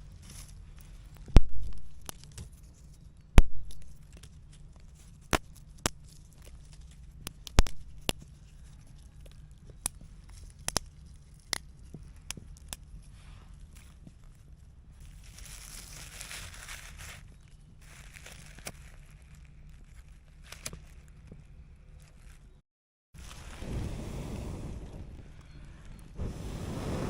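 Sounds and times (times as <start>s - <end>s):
sticks and stones snapping and knocking: 0.0s - 22.5s
faint low rumble: 23.2s - 27.0s.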